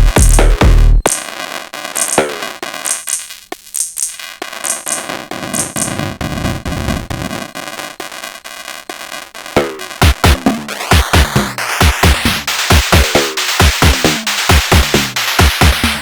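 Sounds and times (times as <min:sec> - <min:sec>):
heavy kick drum: 0:00.0 - 0:01.1, 0:09.6 - 0:16.0
hi-hat hits: 0:00.0 - 0:01.3, 0:02.0 - 0:06.1, 0:10.9 - 0:16.0
clicky percussion: 0:00.0 - 0:06.2.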